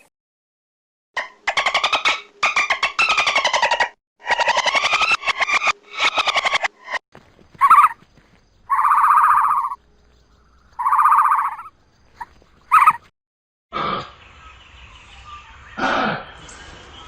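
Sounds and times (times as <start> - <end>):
animal buzzy calls: 7.6 - 8.0, 8.7 - 9.9, 10.7 - 13.1.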